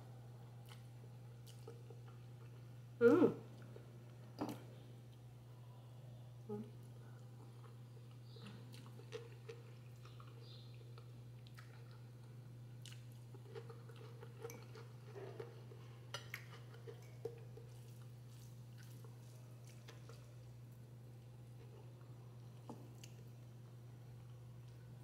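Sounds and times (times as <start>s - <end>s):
steady low hum: 0.0s - 25.0s
chewing noodles: 0.6s - 2.7s, 6.8s - 20.6s.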